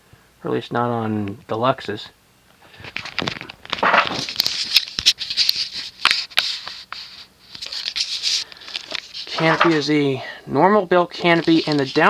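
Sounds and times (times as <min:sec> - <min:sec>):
scraping rustles: 0:02.6 - 0:10.0, 0:11.2 - 0:12.0.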